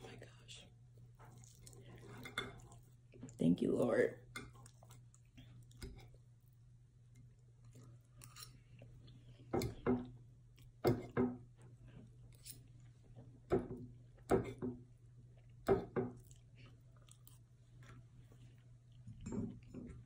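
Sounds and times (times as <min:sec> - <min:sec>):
faint low hum: 0:00.0 - 0:20.0
person chewing food: 0:01.1 - 0:03.3, 0:04.4 - 0:13.1, 0:15.1 - 0:20.0.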